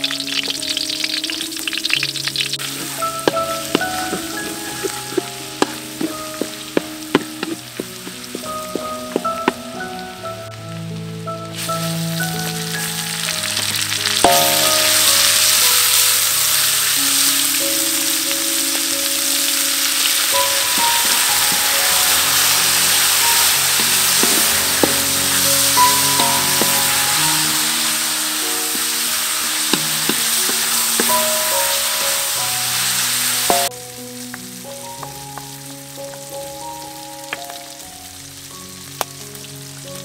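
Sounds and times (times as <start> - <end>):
meat sizzling in a wok: 0.0 - 40.0
soft background music: 0.0 - 40.0
wooden spatula scraping a pan: 2.6 - 9.6, 20.6 - 32.0.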